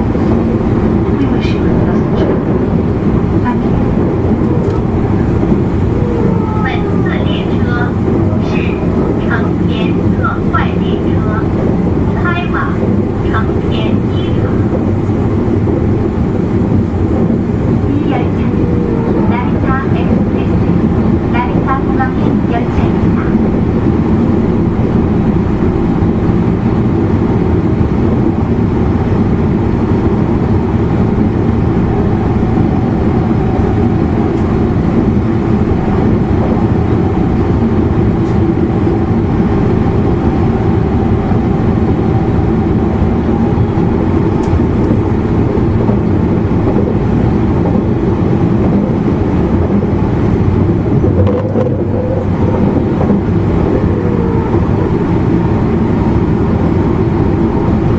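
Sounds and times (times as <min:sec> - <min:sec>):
faint whine: 0:00.0 - 0:20.7
train running rumble: 0:00.0 - 0:57.9.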